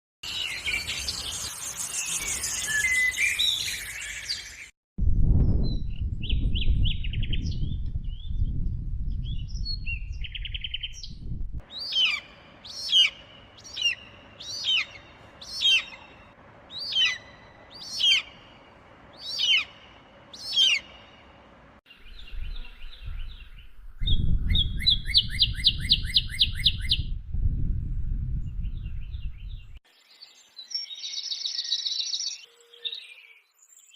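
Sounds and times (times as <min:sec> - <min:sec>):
bird chirps: 0:00.2 - 0:04.7, 0:09.3 - 0:21.3, 0:21.9 - 0:27.1, 0:28.6 - 0:33.9
low rumble: 0:05.0 - 0:11.6
sharp falling bird calls: 0:11.6 - 0:21.4
fast bird trill: 0:11.7 - 0:18.6, 0:19.2 - 0:21.0.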